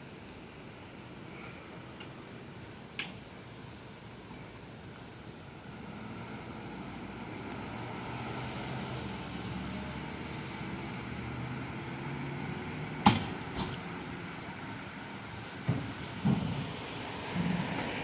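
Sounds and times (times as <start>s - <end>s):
diesel engine running at low speed: 0.0s - 18.0s.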